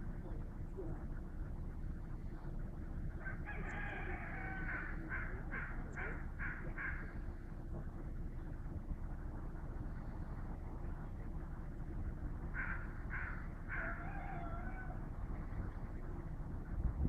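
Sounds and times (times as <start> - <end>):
low rumble: 0.0 - 17.0
distant rooster crowing: 3.1 - 5.7, 12.5 - 15.3.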